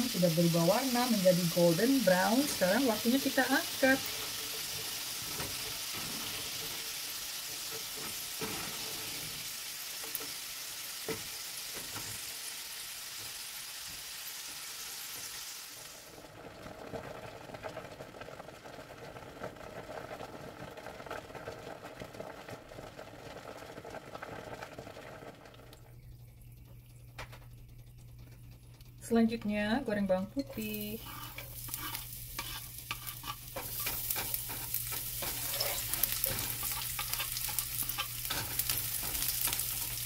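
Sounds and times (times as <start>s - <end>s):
low steady hum: 0.0s - 4.6s, 19.8s - 40.0s
potatoes sizzling in oil: 0.0s - 40.0s
water boiling in pot: 0.0s - 40.0s
spoon and spatula scraping: 30.4s - 40.0s.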